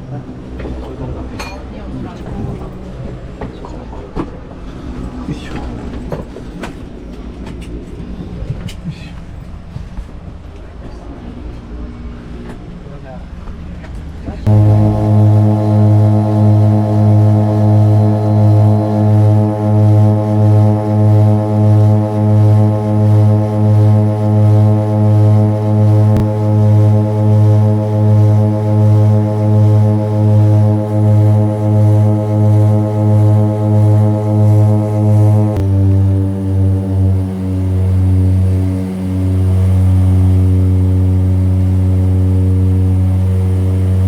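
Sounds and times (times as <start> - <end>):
propeller engines droning: 14.5 - 44.0.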